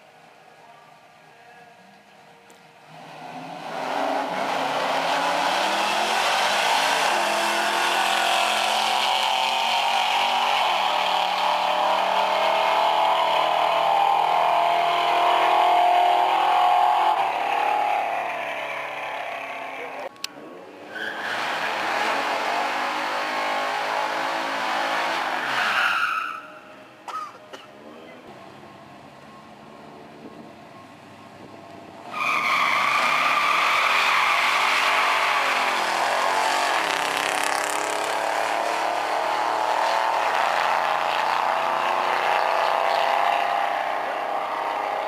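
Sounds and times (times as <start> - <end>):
drag car engine at full throttle: 2.5 - 20.1, 21.0 - 25.6, 31.6 - 45.0
tyre squeal: 25.4 - 26.7, 32.1 - 36.0.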